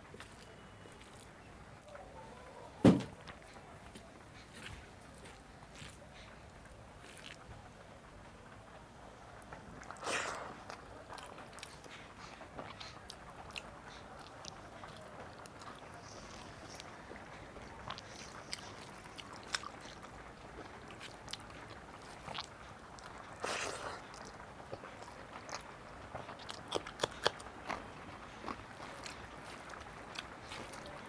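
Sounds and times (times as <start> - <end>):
person chewing food: 7.0 - 7.4, 9.7 - 31.0
crunching: 9.4 - 31.0
wet mouth clicks: 26.3 - 27.8.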